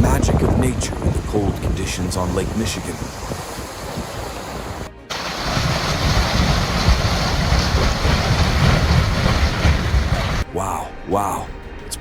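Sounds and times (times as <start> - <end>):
wind buffeting microphone: 0.0 - 10.5
waves rushing: 2.0 - 10.4.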